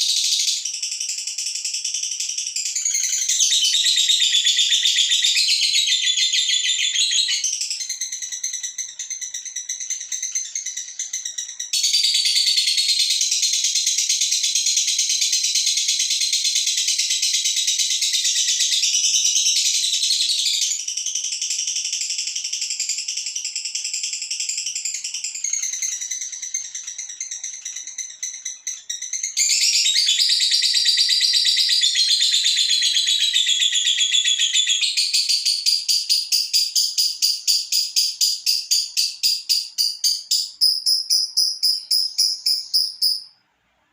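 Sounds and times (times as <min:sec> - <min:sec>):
bird chattering trill: 0:24.0 - 0:43.4.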